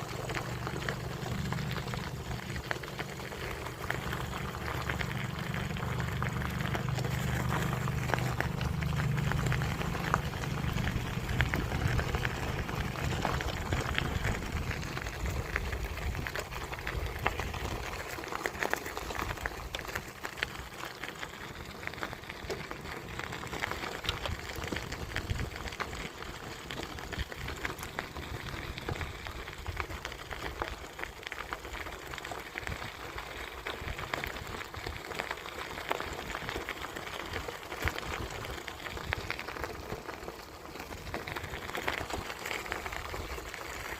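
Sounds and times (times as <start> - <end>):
bicycle tyres crackling on path: 0.0 - 43.9
wind rumble on microphone: 0.1 - 18.2, 21.2 - 30.9.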